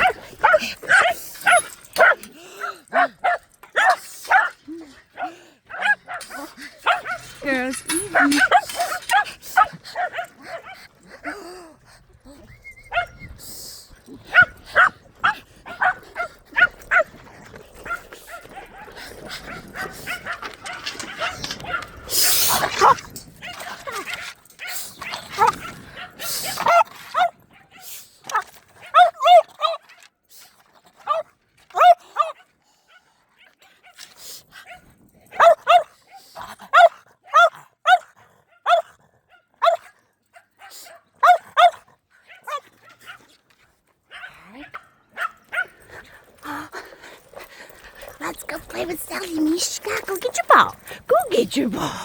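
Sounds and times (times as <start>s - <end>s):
puppy barking: 0.0s - 4.5s, 5.2s - 10.8s, 19.8s - 21.9s, 28.8s - 29.8s, 31.8s - 32.4s, 35.3s - 35.9s, 36.7s - 38.9s, 39.6s - 39.9s, 40.6s - 43.2s
puppies barking and yipping: 0.0s - 4.6s, 5.2s - 11.0s, 12.8s - 13.2s, 17.8s - 22.1s, 47.9s - 51.7s.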